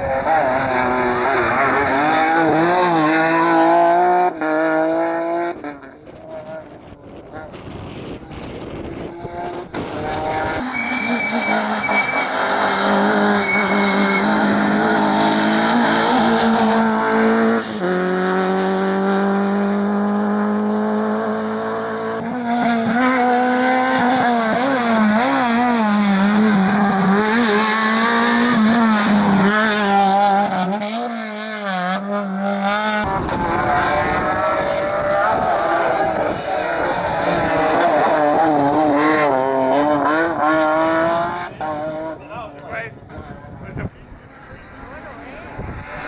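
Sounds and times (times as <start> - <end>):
rally car engines revving: 0.0 - 46.0
tyres squealing: 10.6 - 16.2.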